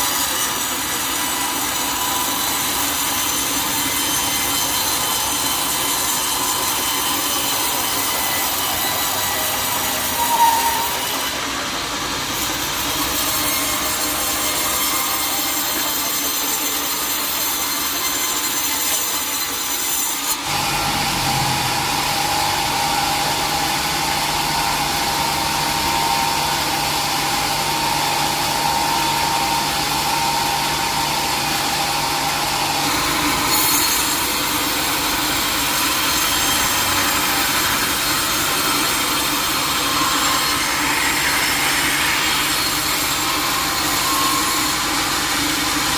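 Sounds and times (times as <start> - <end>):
saw rasping through log: 0.0 - 45.9
high machine whine: 20.2 - 45.9.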